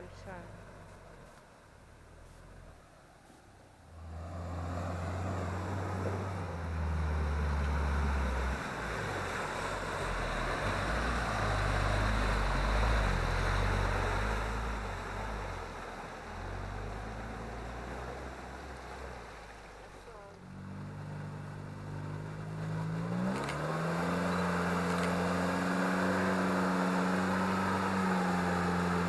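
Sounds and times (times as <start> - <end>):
tyres rushing through ground: 0.0 - 29.0
engine working hard under load: 3.9 - 29.0.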